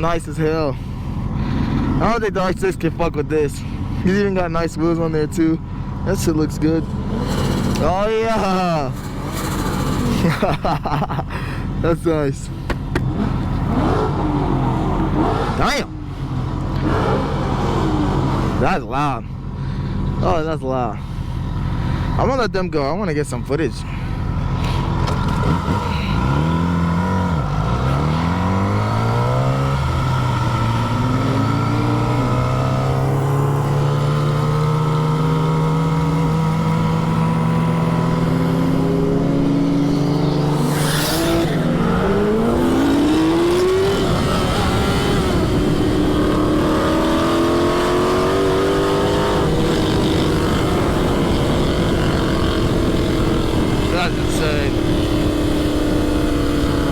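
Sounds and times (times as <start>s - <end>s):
car engines revving: 0.0s - 56.9s.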